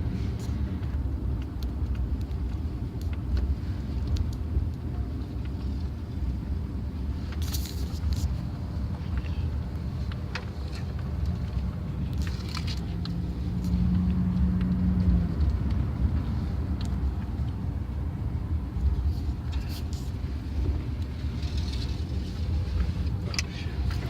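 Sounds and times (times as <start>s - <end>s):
pickup truck engine and road rumble: 0.0s - 24.0s
light ticks: 0.4s - 5.9s, 10.0s - 17.6s.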